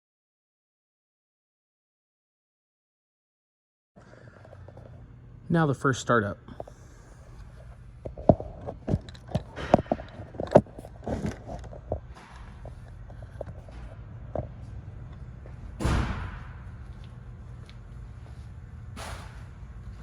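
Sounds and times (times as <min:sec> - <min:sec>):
low steady hum: 0:04.0 - 0:20.0.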